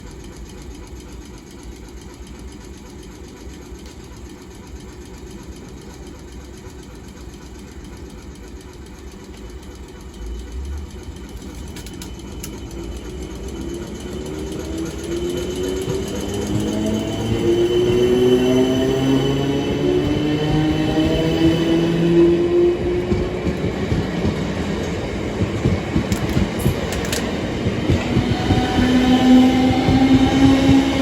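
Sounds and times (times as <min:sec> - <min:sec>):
train low rumble: 0:00.0 - 0:31.0
rising electric whine: 0:10.1 - 0:23.5.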